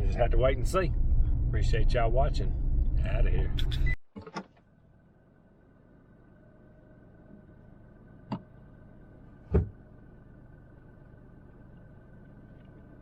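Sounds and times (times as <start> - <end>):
low hum: 0.0 - 4.0
sharp knocks: 9.5 - 9.8.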